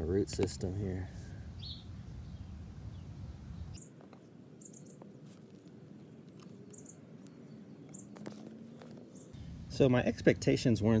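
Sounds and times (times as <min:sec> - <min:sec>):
small bird chirping: 0:01.5 - 0:05.6, 0:06.3 - 0:09.5.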